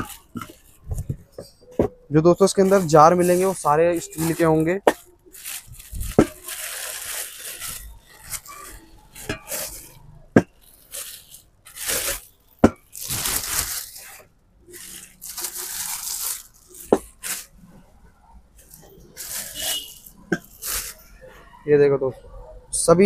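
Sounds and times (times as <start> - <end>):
plastic wrapping crinkling and tearing: 0.0 - 1.4, 2.3 - 17.8, 18.6 - 21.2.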